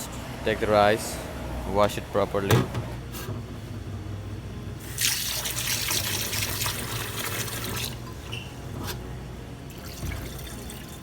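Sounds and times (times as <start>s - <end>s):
tap water running into bowl: 5.0s - 8.2s, 9.7s - 11.0s.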